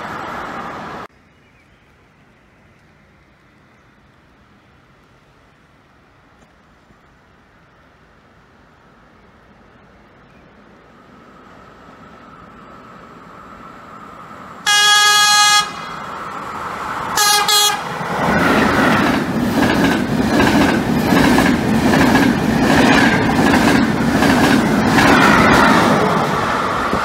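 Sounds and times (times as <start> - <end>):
train passing at speed: 0.0 - 1.1, 3.0 - 27.0
train horn: 14.6 - 16.1, 17.2 - 18.1
wheels clickety-clack: 18.2 - 27.0.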